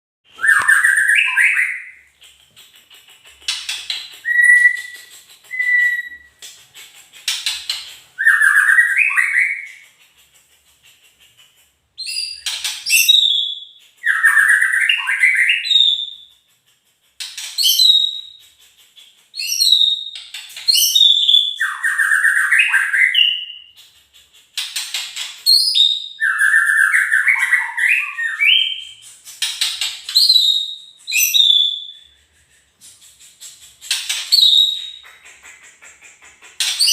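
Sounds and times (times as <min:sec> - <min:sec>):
bird singing whistles and rattles: 0:00.3 - 0:36.9.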